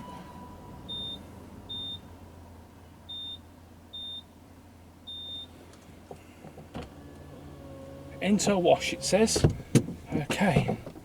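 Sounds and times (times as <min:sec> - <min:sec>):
keypad beeps: 0:00.9 - 0:02.0.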